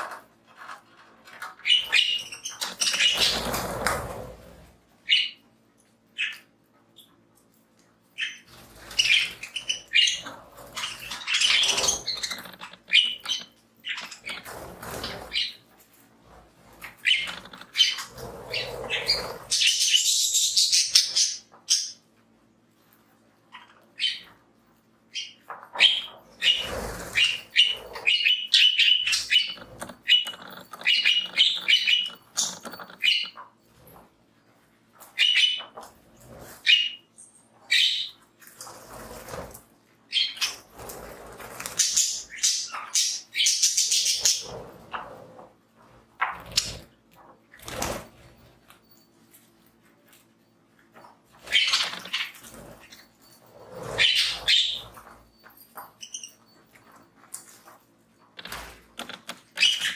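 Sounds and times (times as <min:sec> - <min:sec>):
rustling and scratching: 0:00.0 - 0:05.0, 0:05.8 - 0:19.9, 0:25.5 - 0:42.6, 0:43.8 - 0:59.9
budgies chirping: 0:01.3 - 0:04.2, 0:06.2 - 0:06.5, 0:08.2 - 0:15.6, 0:16.7 - 0:22.0, 0:23.5 - 0:24.4, 0:25.1 - 0:34.0, 0:35.0 - 0:39.5, 0:40.1 - 0:45.4, 0:51.4 - 0:56.9, 0:58.4 - 0:59.9.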